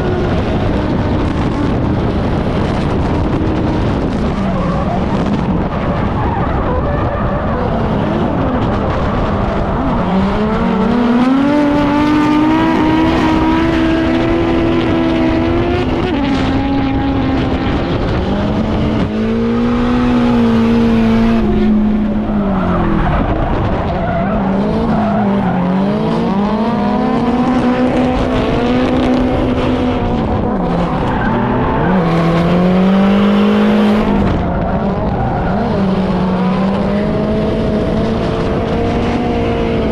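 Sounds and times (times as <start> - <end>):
car engine at high revs: 0.0 - 39.9
tyres skidding and squealing: 4.2 - 10.7, 19.4 - 26.2, 30.6 - 32.8.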